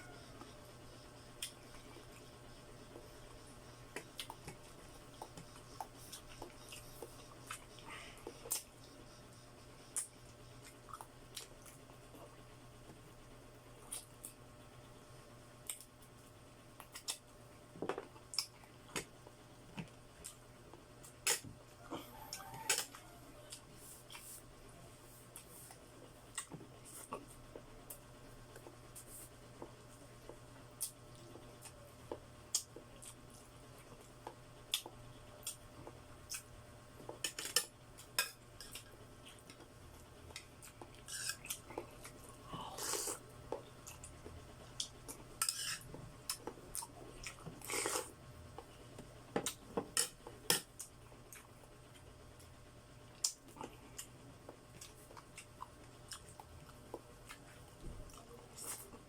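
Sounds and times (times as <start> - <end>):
chewing and biting: 53.1 - 59.0.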